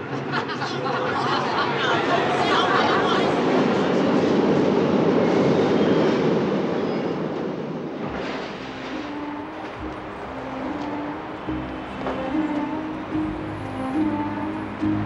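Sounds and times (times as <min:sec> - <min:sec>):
subway train rumble and rattle: 0:00.0 - 0:15.0.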